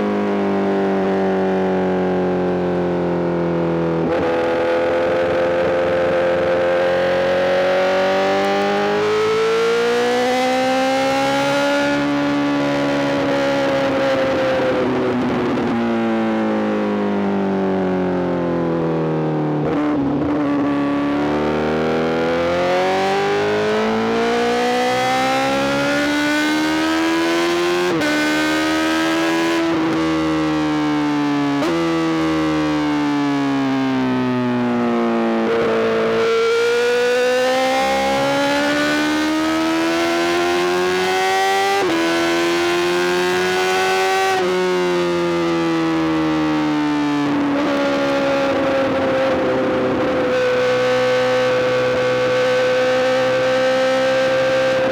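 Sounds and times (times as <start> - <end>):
motorcycle engine revving: 4.0 - 15.7, 19.6 - 30.8, 34.8 - 46.4, 47.2 - 54.9.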